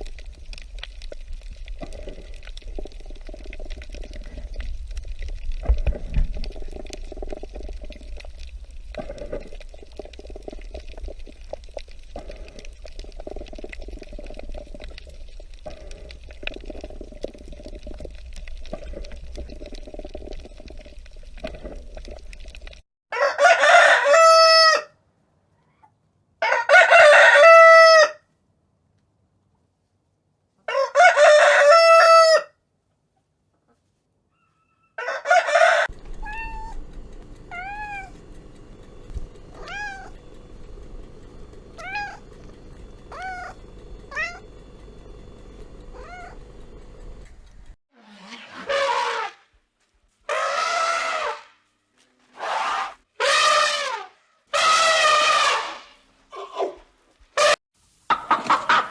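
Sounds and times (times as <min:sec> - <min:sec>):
choppy noise: 0:00.0 - 0:22.8, 0:35.8 - 0:47.8
low hum: 0:00.0 - 0:22.8, 0:35.7 - 0:47.8
rooster crowing: 0:23.1 - 0:25.0, 0:26.4 - 0:28.2, 0:30.7 - 0:32.6, 0:34.4 - 0:36.8, 0:45.9 - 0:46.6.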